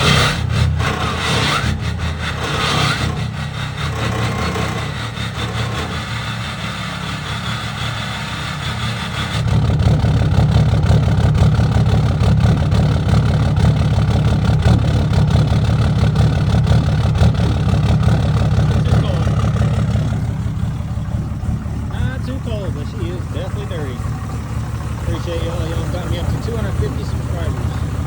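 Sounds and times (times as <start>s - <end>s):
diesel engine idling with clatter: 0.0s - 28.0s.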